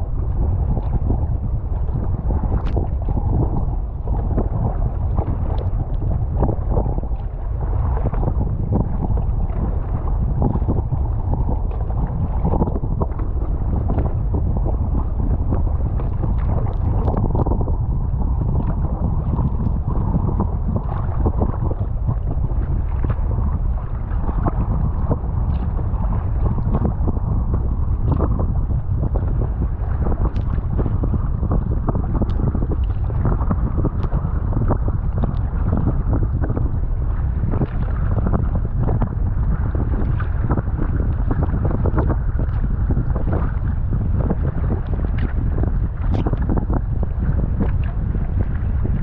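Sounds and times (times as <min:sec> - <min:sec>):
water splashing against kayak: 0:00.0 - 0:49.0
wind buffeting microphone: 0:00.0 - 0:49.0.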